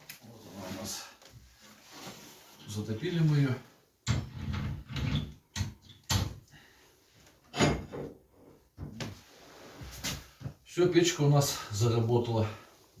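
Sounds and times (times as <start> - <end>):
stove door knocks and clatters: 7.5 - 8.2.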